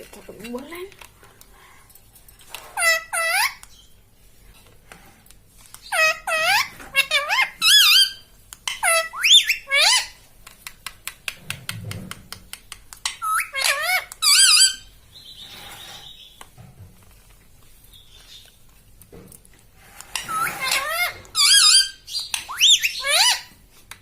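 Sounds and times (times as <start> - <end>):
parakeet squawking: 2.7 - 3.6, 5.8 - 10.2, 13.1 - 16.3, 20.1 - 23.6.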